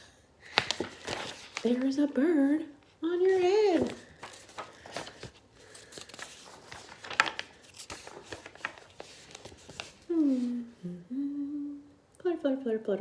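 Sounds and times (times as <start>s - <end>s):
book pages turning: 0.5s - 2.2s, 3.2s - 10.6s
paper rustling and clicks: 0.5s - 2.2s, 3.2s - 10.5s
person speaking: 3.0s - 4.2s, 10.0s - 11.7s.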